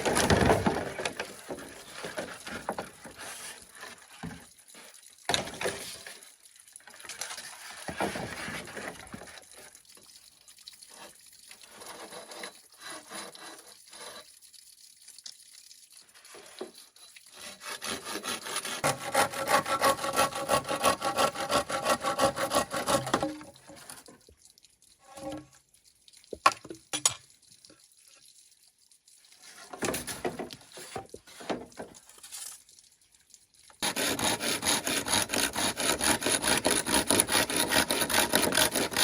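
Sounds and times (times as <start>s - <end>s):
hand tool scraping bamboo: 11.7s - 14.3s, 17.3s - 24.0s, 33.8s - 39.0s.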